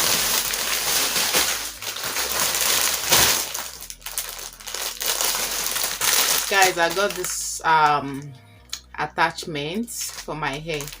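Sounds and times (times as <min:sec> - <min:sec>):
plastic packaging crinkling: 0:00.0 - 0:07.6, 0:10.0 - 0:11.0.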